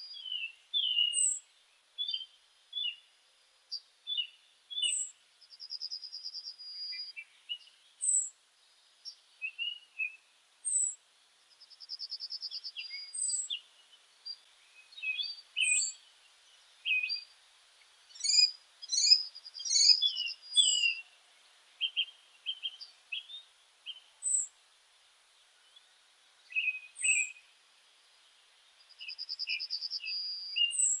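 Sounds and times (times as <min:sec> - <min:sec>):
bird chirps: 0:00.0 - 0:03.1, 0:03.7 - 0:17.4, 0:18.1 - 0:21.2, 0:21.8 - 0:24.6, 0:25.6 - 0:27.5, 0:28.1 - 0:31.0.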